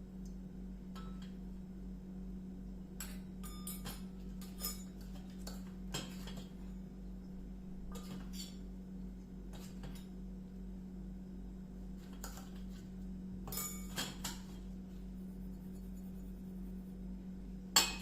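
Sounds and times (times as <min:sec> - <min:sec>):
steady low hum: 0:00.0 - 0:18.0
utensils clinking against dishes: 0:03.0 - 0:06.5, 0:07.9 - 0:08.6, 0:13.4 - 0:14.6, 0:17.8 - 0:18.0.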